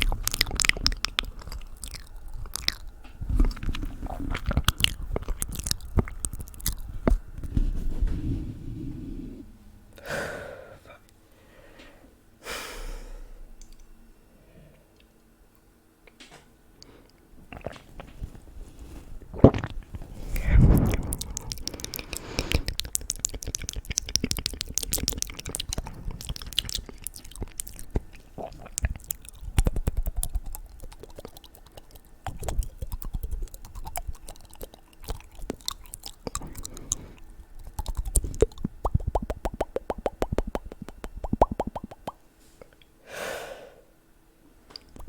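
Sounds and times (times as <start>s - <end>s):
wet mouth clicks and smacks: 0.0s - 7.5s, 19.4s - 42.2s, 44.8s - 45.0s.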